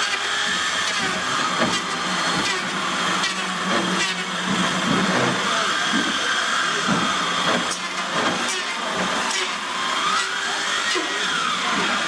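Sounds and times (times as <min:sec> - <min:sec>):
electric power tool motor whining: 0:00.0 - 0:12.0.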